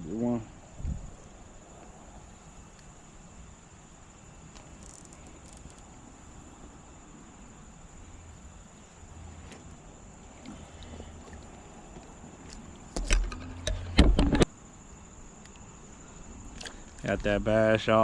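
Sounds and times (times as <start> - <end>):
high-pitched insect drone: 1.0 - 10.2.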